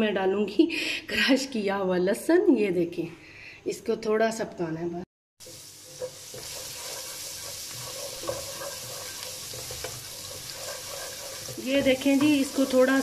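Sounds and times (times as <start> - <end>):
garlic sizzling in oil: 5.4 - 13.0
wooden spatula stirring: 5.5 - 13.0.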